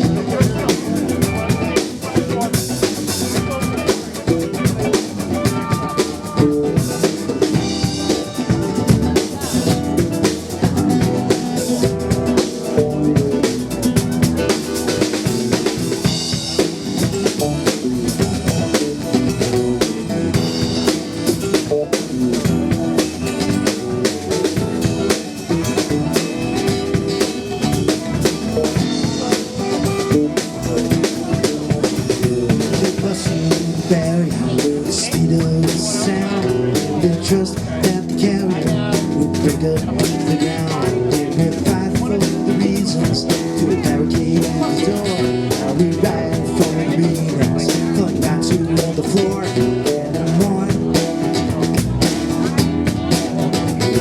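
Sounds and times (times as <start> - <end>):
drum kit beat: 0.0 - 54.0
rock band playing: 0.0 - 54.0.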